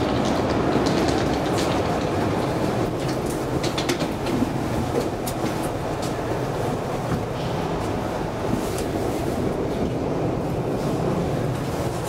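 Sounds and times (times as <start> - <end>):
metro train rumbling: 0.0 - 12.0.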